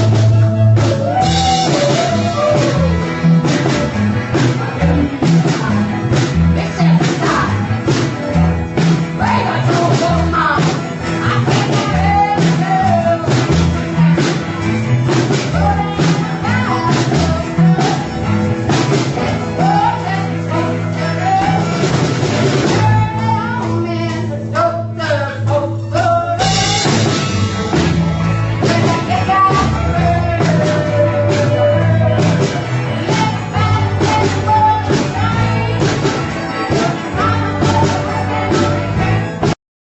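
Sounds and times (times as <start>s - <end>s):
lead singer singing: 0.0s - 27.9s, 28.5s - 39.6s
drums: 0.0s - 39.6s
rock band playing: 0.0s - 39.6s.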